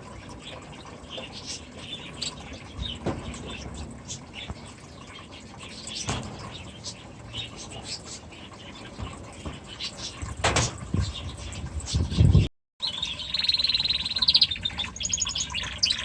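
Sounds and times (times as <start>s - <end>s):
small birds chirping: 0.1s - 16.0s
loud knocks: 6.0s - 7.0s, 8.9s - 11.2s.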